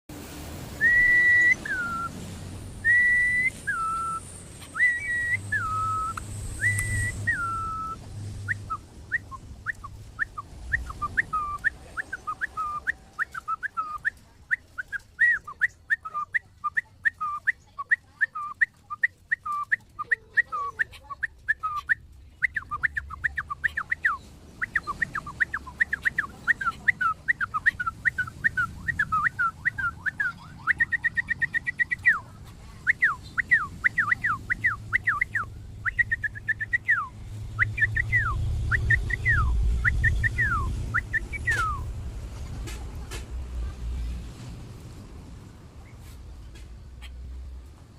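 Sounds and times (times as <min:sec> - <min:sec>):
bird whistling: 0:00.8 - 0:02.2, 0:02.8 - 0:41.9.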